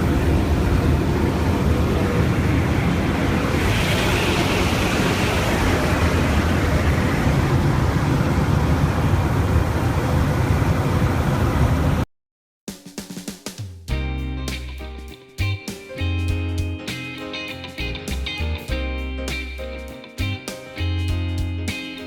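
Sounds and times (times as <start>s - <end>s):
aircraft engine roar: 0.0s - 12.1s.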